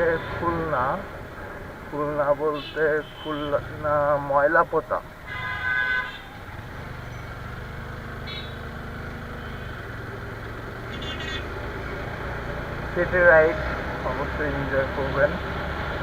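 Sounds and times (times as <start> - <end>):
vehicle horn honking: 2.6 - 3.6, 5.2 - 6.4, 8.2 - 8.6, 10.9 - 11.6
motorcycle engine running: 6.2 - 16.0.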